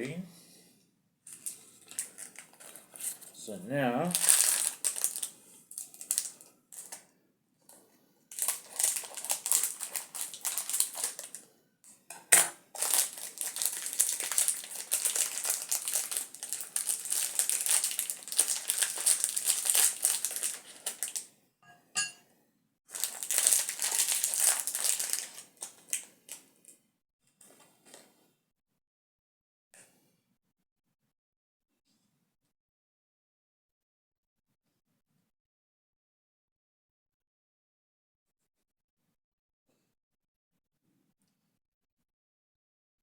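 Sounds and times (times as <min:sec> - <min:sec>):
packaging crinkling and rustling: 0:01.3 - 0:03.4, 0:04.0 - 0:07.0, 0:08.3 - 0:11.5, 0:12.2 - 0:21.3, 0:22.9 - 0:26.5, 0:27.4 - 0:28.1.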